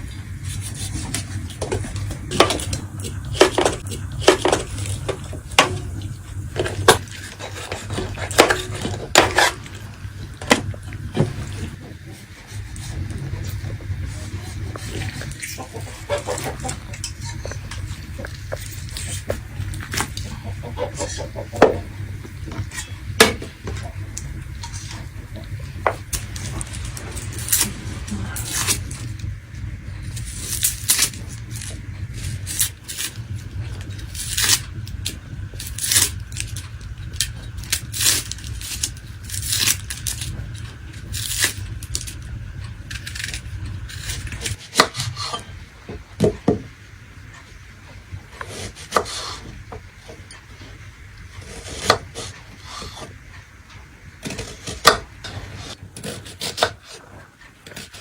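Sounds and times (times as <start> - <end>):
utensils clinking against pots: 0.4 - 29.2.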